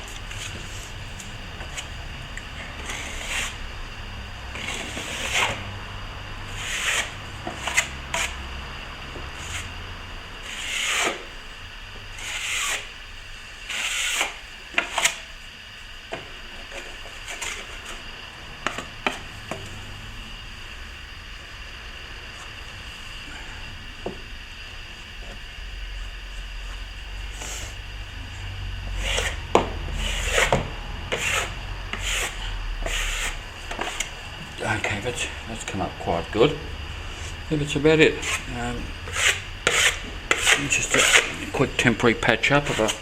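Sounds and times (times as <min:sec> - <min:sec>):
trowel scraping cement: 0:02.8 - 0:03.6, 0:10.4 - 0:11.2, 0:12.2 - 0:12.8, 0:29.0 - 0:29.4, 0:30.0 - 0:34.1, 0:38.2 - 0:43.0.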